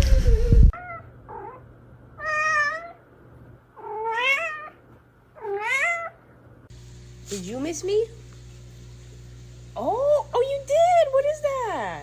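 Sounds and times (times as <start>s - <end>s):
cat meowing: 0.8s - 1.6s, 2.2s - 3.0s, 3.8s - 4.8s, 5.4s - 6.2s.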